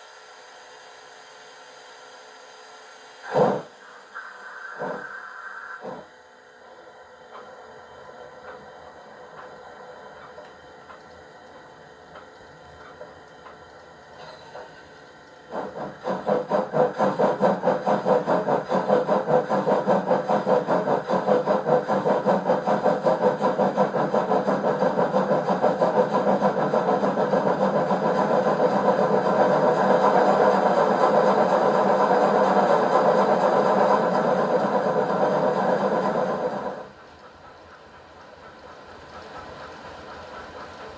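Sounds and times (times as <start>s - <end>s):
steam locomotive chuffs from loudspeaker: 3.2s - 6.3s, 15.5s - 40.9s.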